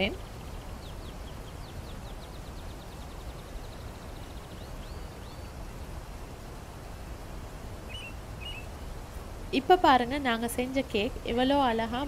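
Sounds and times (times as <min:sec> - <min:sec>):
bird chirping: 0:00.0 - 0:05.6, 0:07.9 - 0:08.7.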